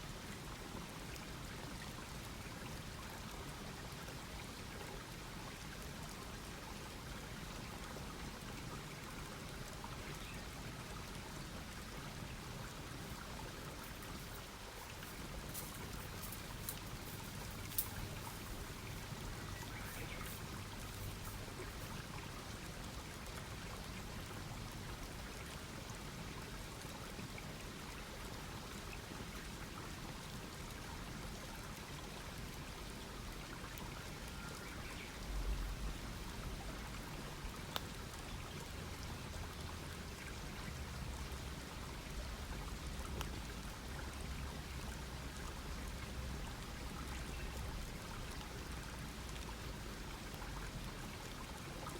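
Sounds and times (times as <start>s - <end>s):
campfire hissing and crackling: 13.0s - 22.2s.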